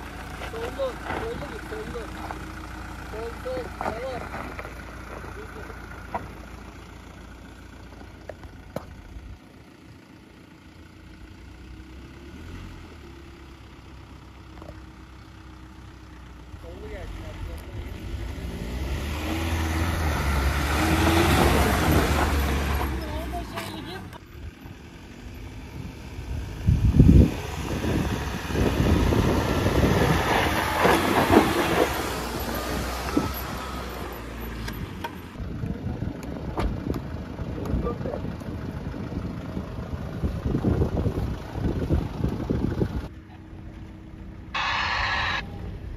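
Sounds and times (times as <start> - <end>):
tyres crunching and scraping: 0.0 - 9.1, 29.8 - 35.4
off-road vehicle engine at low revs: 0.0 - 45.9
faint squeal: 44.6 - 45.9.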